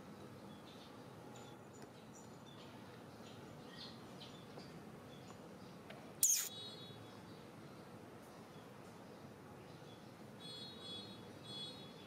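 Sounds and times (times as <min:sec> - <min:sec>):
small birds chirping: 0:01.9 - 0:07.5.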